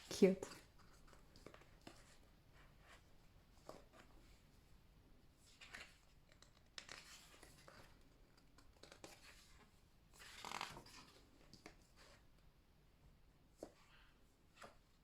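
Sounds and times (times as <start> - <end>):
paper pages rustling: 5.4 - 12.2.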